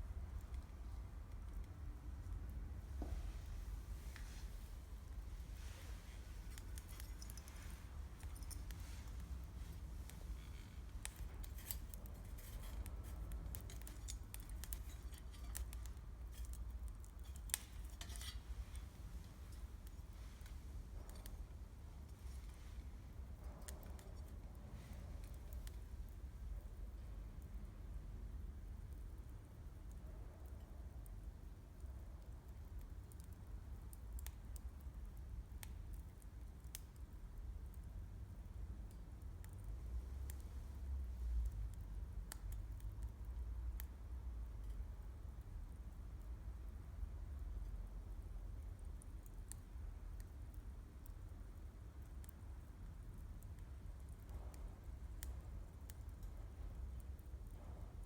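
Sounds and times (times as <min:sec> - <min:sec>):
low steady rumble: 0:00.0 - 0:35.7
campfire crackling: 0:00.3 - 0:27.5.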